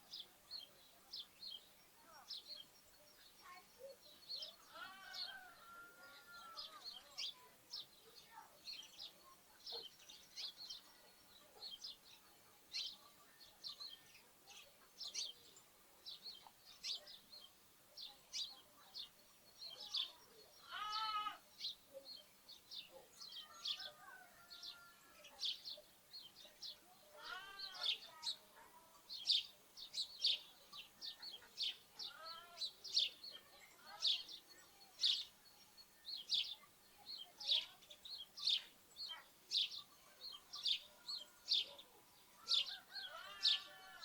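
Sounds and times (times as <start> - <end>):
sparrows chirping: 0.0 - 44.0
lamb bleating: 20.6 - 21.4.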